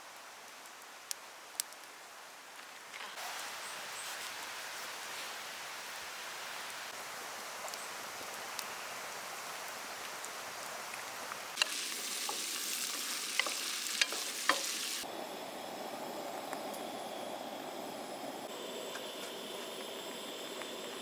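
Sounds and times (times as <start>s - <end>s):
food sizzling in a pan: 11.5s - 15.1s
utensil clicking against pan: 11.6s - 14.8s.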